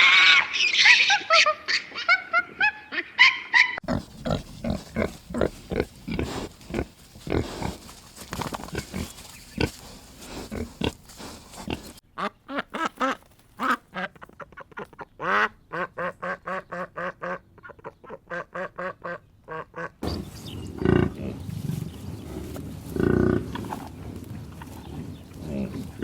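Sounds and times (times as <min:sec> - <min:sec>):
duck quacking: 0:11.7 - 0:20.0.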